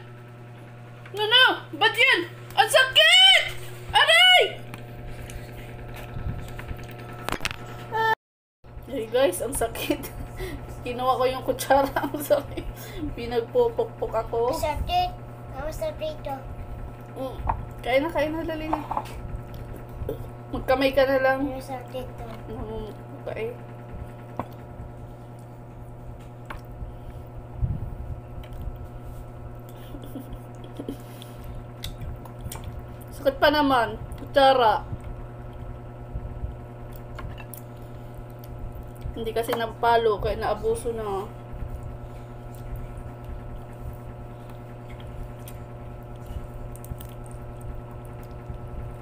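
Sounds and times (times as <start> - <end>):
steady low hum: 0.0 - 49.0
wet chewing: 30.4 - 33.2, 36.8 - 39.2, 41.6 - 49.0.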